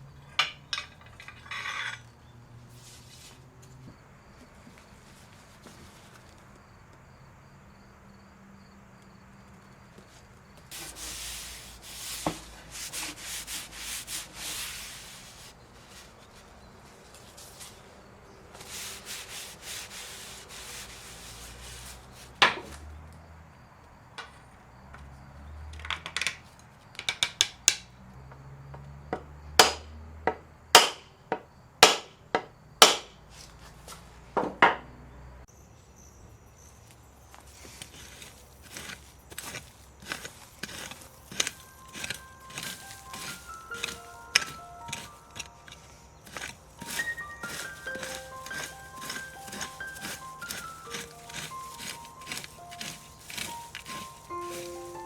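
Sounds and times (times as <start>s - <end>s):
sandpaper rubbing on wood: 10.7s - 16.0s, 18.6s - 22.4s, 38.0s - 55.0s.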